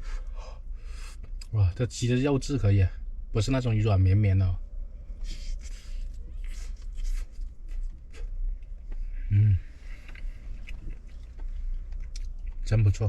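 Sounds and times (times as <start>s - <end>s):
chewing and mouth sounds: 5.2s - 13.0s
person humming: 9.3s - 9.7s.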